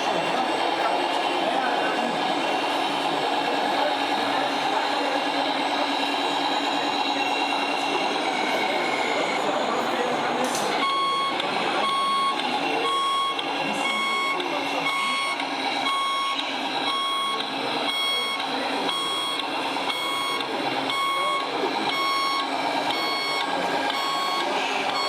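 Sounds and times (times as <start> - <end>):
electronic reversing beeps: 10.8 - 25.0.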